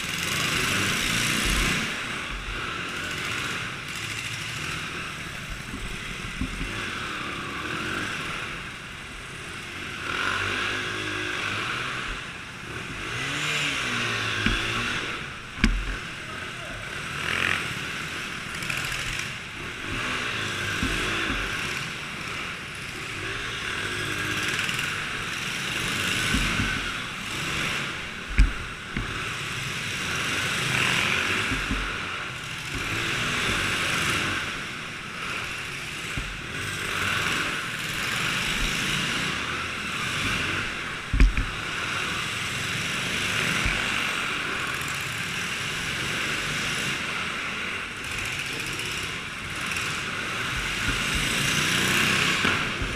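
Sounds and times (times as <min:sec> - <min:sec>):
small engines revving: 0:00.0 - 0:52.9
sharp thumps: 0:14.4 - 0:16.1, 0:24.9 - 0:29.7, 0:30.8 - 0:34.7, 0:36.1 - 0:36.7, 0:40.2 - 0:41.9, 0:50.4 - 0:52.9.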